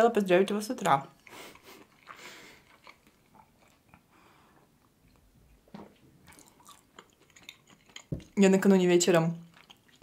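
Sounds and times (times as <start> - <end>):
person chewing: 1.2 - 8.4, 9.4 - 10.0.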